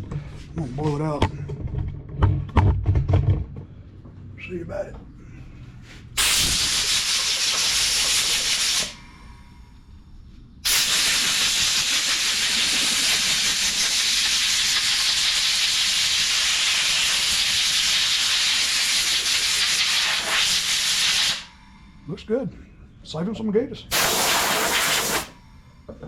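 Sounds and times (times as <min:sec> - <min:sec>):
compressed air blow gun hissing: 0:06.2 - 0:09.1, 0:10.6 - 0:21.5, 0:23.9 - 0:25.4.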